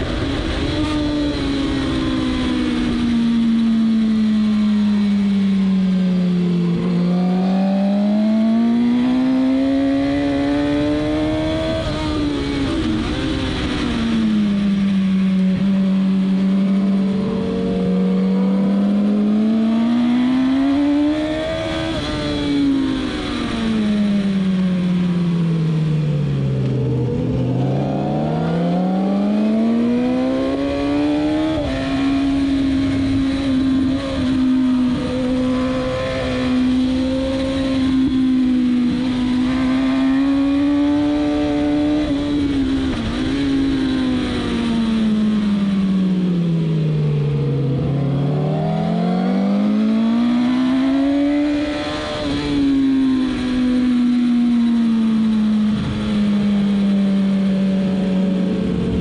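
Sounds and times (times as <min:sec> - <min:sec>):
motorcycle engine racing: 0:00.0 - 0:59.0.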